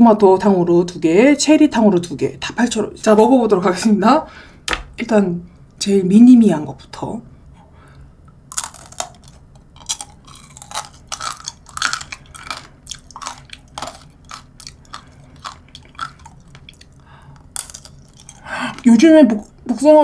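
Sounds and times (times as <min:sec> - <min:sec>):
sugar coating crunching: 0:08.4 - 0:19.9
chewing candied fruit: 0:08.5 - 0:19.7.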